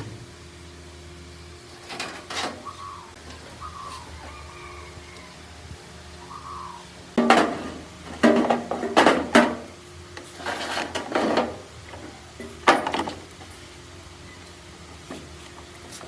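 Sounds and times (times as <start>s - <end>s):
clattering knocks: 7.2s - 9.7s.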